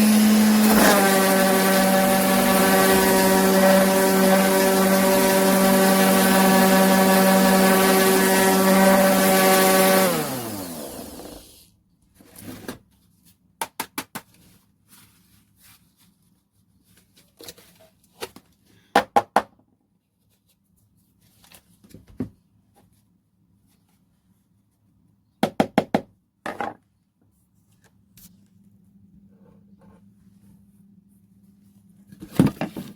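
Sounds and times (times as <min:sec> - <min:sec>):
orbital sander running: 0:00.0 - 0:11.6.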